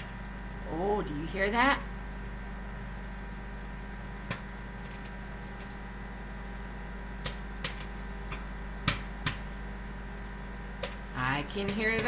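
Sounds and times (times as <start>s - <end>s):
microwave oven hum: 0.0s - 12.0s
popcorn kernels popping: 4.2s - 5.8s, 6.8s - 12.0s.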